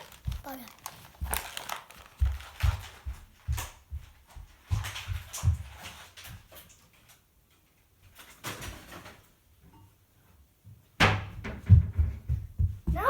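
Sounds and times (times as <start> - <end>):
plastic toy packaging rustling: 0.0 - 3.0.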